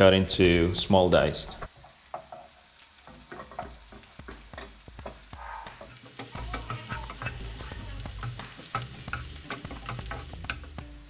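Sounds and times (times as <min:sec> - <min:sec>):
onion frying in oil sizzling: 0:01.7 - 0:11.0
utensil scraping pan: 0:03.1 - 0:10.8.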